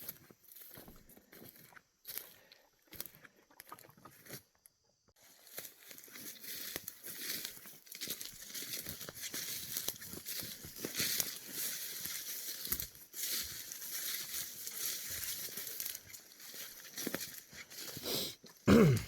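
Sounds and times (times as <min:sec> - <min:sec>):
marsh plants rustling and crackling: 0:00.0 - 0:02.2, 0:05.2 - 0:18.6.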